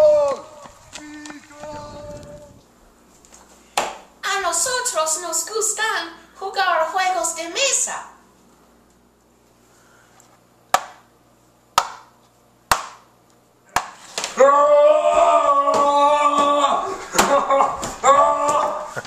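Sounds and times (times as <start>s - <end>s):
loud voices calling out: 0.0s - 2.6s, 14.3s - 19.0s
sharp knocks or slaps: 3.8s - 4.0s, 10.7s - 11.0s, 11.8s - 12.1s, 12.7s - 13.1s.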